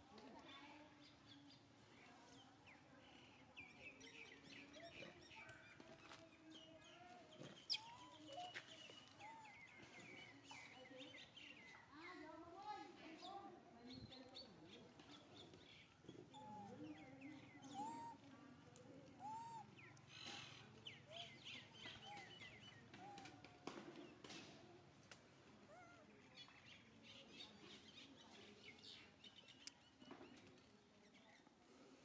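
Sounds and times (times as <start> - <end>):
birds chirping and twittering: 0.5 - 24.5
bird calls: 3.6 - 11.8, 13.9 - 18.4, 19.1 - 24.2.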